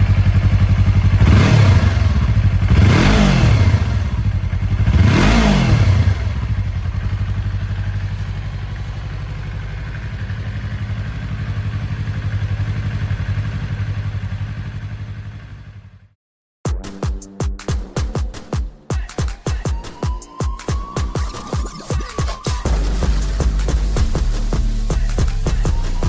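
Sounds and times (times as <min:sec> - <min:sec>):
motorcycle engine revving and idling: 0:00.0 - 0:16.2, 0:22.6 - 0:26.0.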